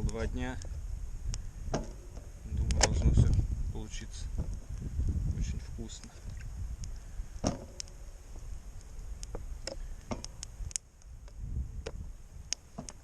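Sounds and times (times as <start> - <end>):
light clicks at charcoal grill: 0.0 - 1.4, 2.5 - 3.4, 8.8 - 13.0
low rumble of wind: 0.0 - 13.0.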